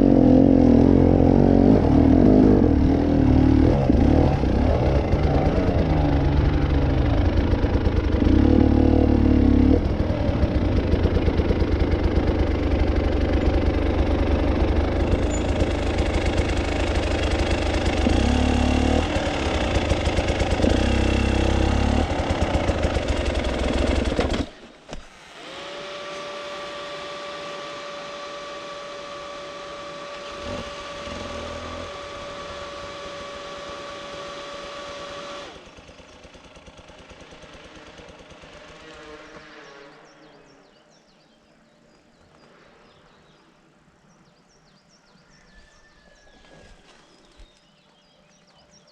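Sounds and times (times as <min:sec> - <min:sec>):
motorcycle engine revving: 0:00.0 - 0:40.8
cooling fan whine: 0:25.1 - 0:35.8.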